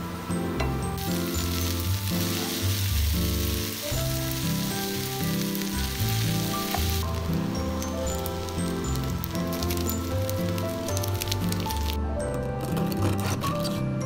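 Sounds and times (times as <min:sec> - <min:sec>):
background music: 0:00.0 - 0:14.0
fried rice sizzling in a pan: 0:01.0 - 0:12.0.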